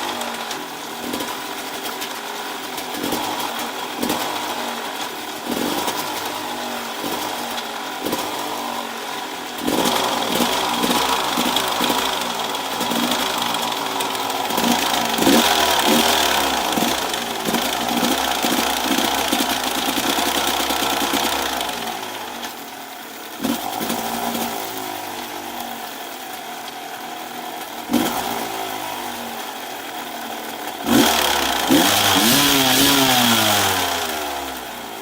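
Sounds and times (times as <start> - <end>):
two-stroke engine running: 0.0 - 35.0
engine throttle blips: 9.6 - 22.6.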